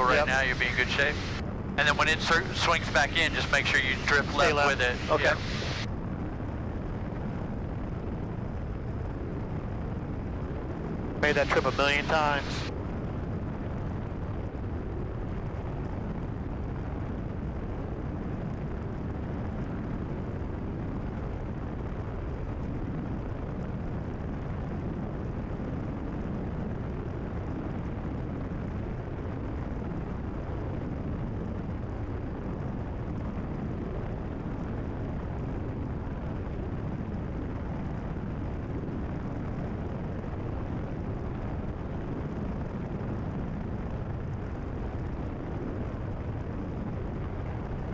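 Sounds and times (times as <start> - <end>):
airplane engine drone: 0.0 - 15.1.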